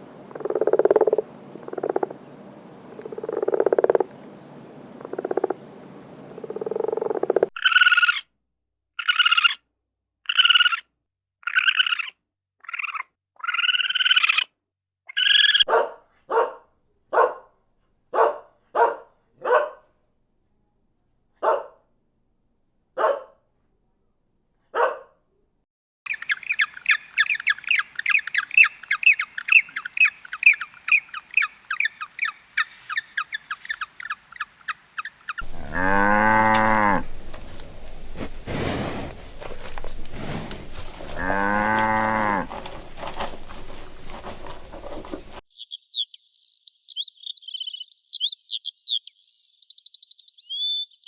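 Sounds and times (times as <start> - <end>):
dog barking: 15.7 - 19.9, 21.4 - 21.8, 23.0 - 23.4, 24.7 - 25.2
small birds chirping: 26.1 - 51.0
cow mooing: 35.4 - 45.4.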